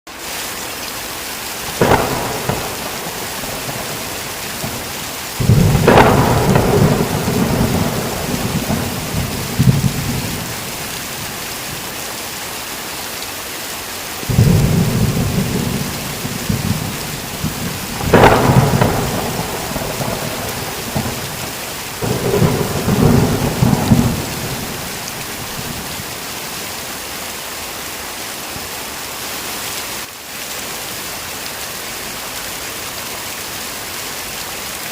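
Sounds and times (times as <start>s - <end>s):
heavy rain: 0.1s - 34.9s
thunder cracking and rumbling: 1.8s - 11.4s, 14.2s - 26.2s.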